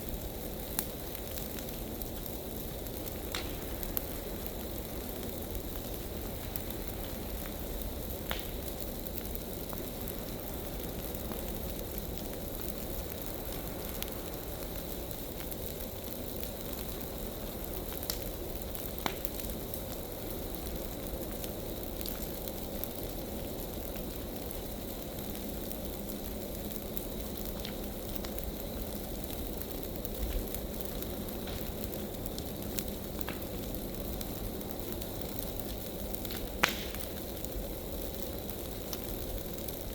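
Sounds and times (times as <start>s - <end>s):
fire popping and crackling: 0.0s - 39.9s
flames rushing: 0.0s - 39.9s.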